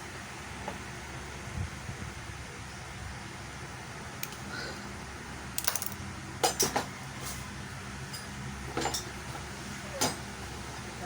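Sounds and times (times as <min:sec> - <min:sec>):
steady low hum: 0:00.0 - 0:11.0
small parts and tools clattering: 0:05.6 - 0:07.4, 0:08.1 - 0:09.2.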